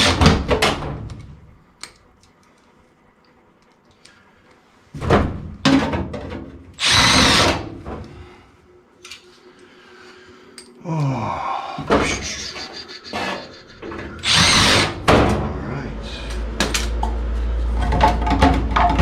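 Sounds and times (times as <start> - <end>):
cordless power driver running: 6.8 - 7.6, 14.2 - 15.1.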